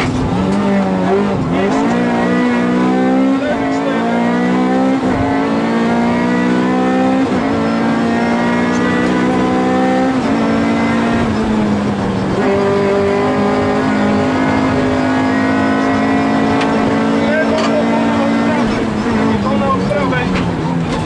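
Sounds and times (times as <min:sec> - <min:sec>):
car engine revving high: 0:00.0 - 0:21.0
road noise: 0:00.0 - 0:21.0.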